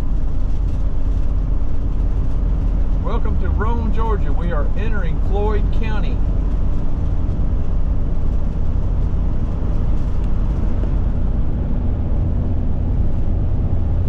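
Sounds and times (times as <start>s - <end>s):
motorhome engine and road noise: 0.0s - 14.0s.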